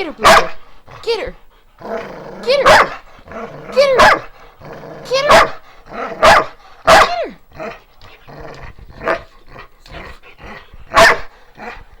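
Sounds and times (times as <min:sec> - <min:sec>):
dogs barking sharply: 0:00.0 - 0:00.7, 0:02.5 - 0:03.0, 0:03.8 - 0:04.3, 0:05.1 - 0:07.3, 0:10.9 - 0:11.3
dogs growling: 0:00.0 - 0:12.0.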